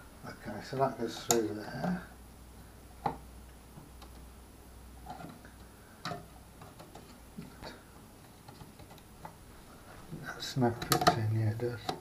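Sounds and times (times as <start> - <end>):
plastic parts clicking and knocking: 6.0 - 7.8, 8.4 - 9.4, 10.8 - 12.0.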